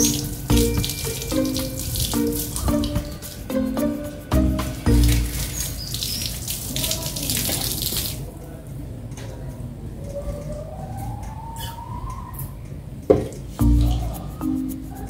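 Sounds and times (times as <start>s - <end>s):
hose spraying water: 0.0s - 8.3s.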